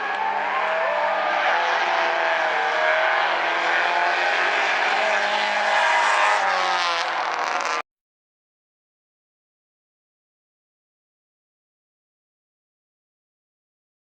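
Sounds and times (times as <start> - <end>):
race car engines droning: 0.0 - 7.8.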